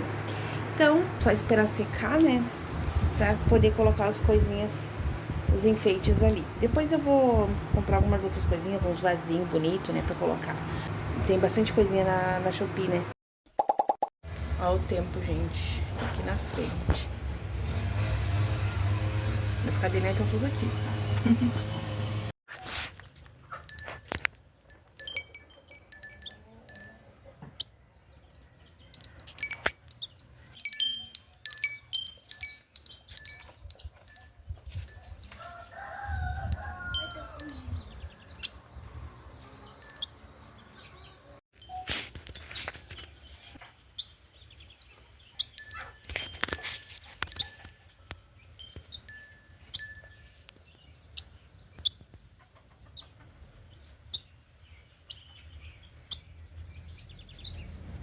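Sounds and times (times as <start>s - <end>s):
wind chimes tinkling: 23.6s - 27.3s, 28.3s - 37.8s, 39.8s - 40.2s, 45.4s - 50.5s
rooster crowing: 35.3s - 37.8s.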